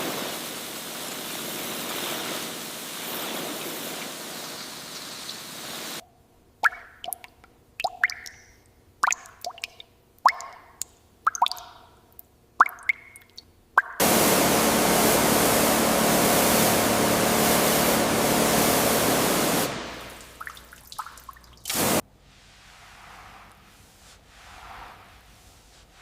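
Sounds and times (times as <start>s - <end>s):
spraying hiss: 0.0s - 6.0s, 14.0s - 20.4s, 21.7s - 26.0s
water dripping: 6.6s - 14.0s, 20.1s - 21.8s.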